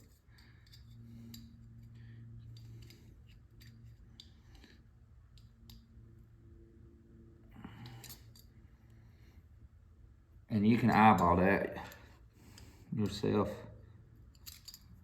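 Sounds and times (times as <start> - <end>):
small metal parts clicking: 0.0 - 5.9, 7.7 - 8.6, 14.2 - 15.0
low steady hum: 0.0 - 15.0.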